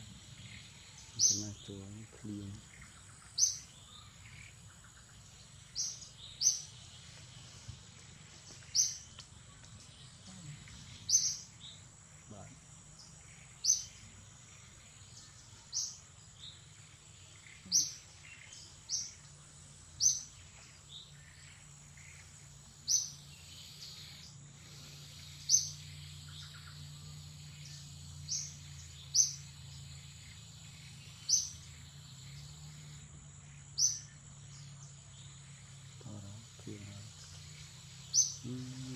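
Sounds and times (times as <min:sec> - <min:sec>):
bird chirping: 0:00.0 - 0:38.9
high-pitched insect drone: 0:20.0 - 0:38.9.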